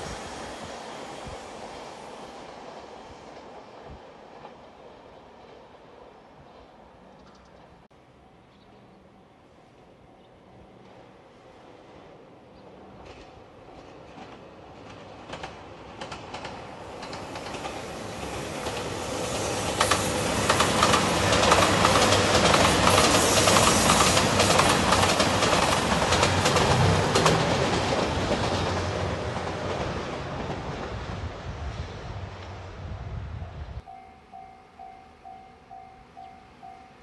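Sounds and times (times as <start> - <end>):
diesel train passing: 0.0 - 37.0
wheels clacking over rail joints: 13.0 - 31.0.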